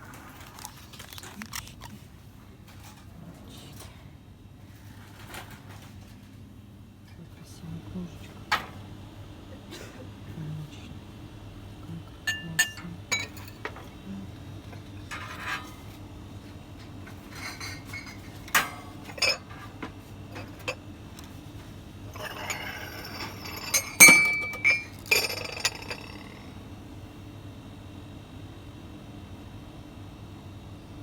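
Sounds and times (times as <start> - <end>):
crockery knocks and clinks: 22.2 - 26.4.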